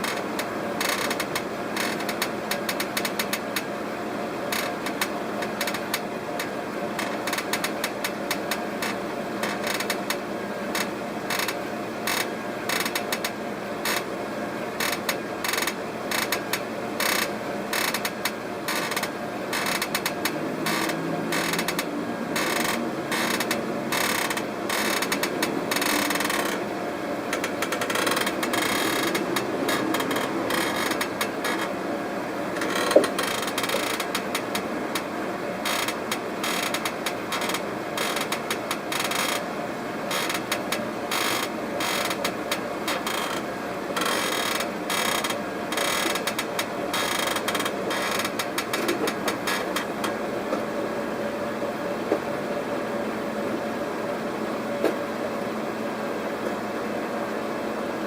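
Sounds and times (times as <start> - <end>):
steady mechanical noise: 0.0 - 58.0
creaking: 7.0 - 10.2, 14.8 - 26.7, 27.3 - 31.8, 32.6 - 39.4, 40.1 - 43.4, 44.0 - 50.2.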